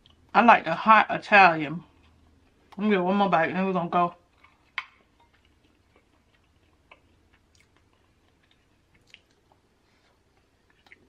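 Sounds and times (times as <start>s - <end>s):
quiet chewing: 0.0s - 0.3s, 1.8s - 2.8s, 4.1s - 11.0s.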